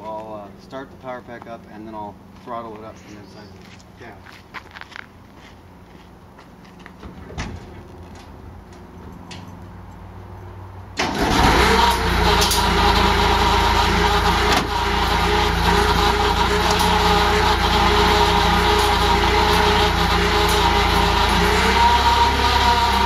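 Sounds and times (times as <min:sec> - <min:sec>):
engine starting and running: 0:06.8 - 0:23.0.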